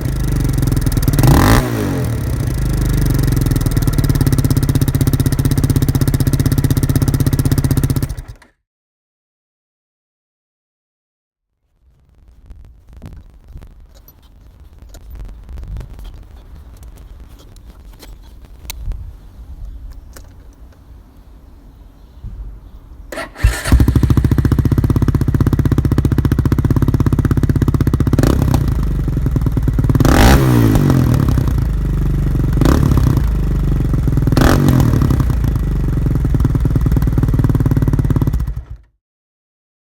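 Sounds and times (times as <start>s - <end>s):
quad engine idling and blipped: 0.0s - 8.4s, 23.1s - 38.9s.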